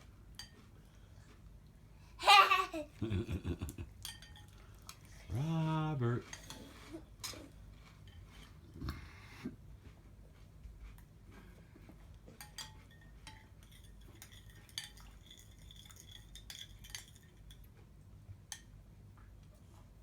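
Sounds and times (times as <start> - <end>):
cutlery clinking against dishes: 0.3 - 0.7, 4.0 - 5.1, 6.2 - 8.6, 12.2 - 17.8.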